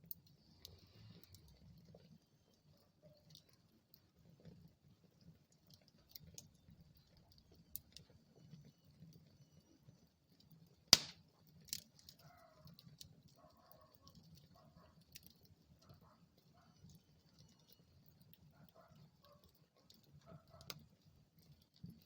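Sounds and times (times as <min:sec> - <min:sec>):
wood fire crackling: 0:00.0 - 0:22.0
loud sharp pop of fire: 0:10.9 - 0:11.2.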